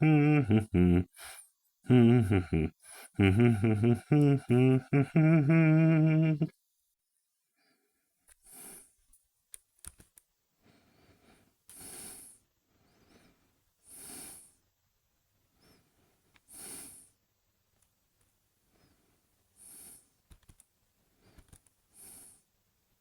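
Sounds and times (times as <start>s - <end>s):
heavy breathing snoring: 0.0s - 6.5s.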